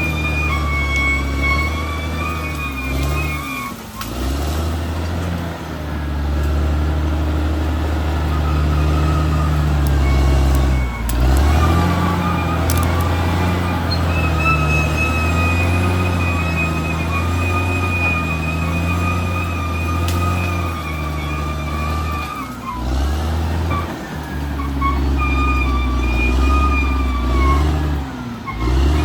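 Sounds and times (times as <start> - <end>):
bulldozer diesel engine: 0.0 - 29.0.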